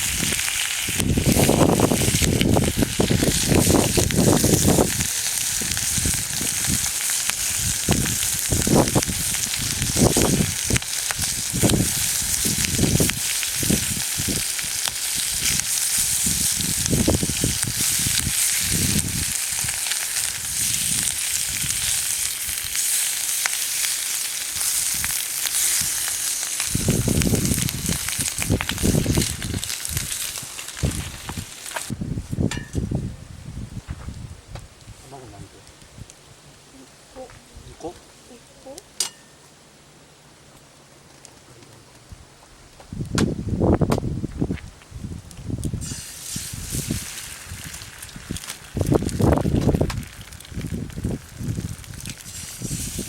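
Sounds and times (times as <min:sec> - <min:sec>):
food sizzling in a pan: 0:00.0 - 0:31.9, 0:45.8 - 0:53.0
low muffled thumps: 0:42.8 - 0:44.6.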